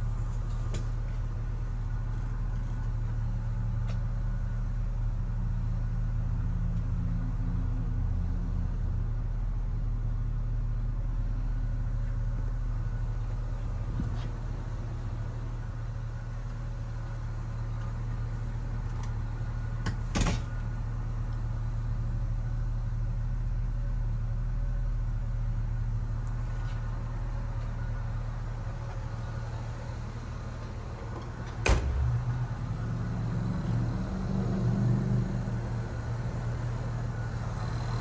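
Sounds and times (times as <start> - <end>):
car engine idling: 0.0 - 4.7, 12.2 - 38.0.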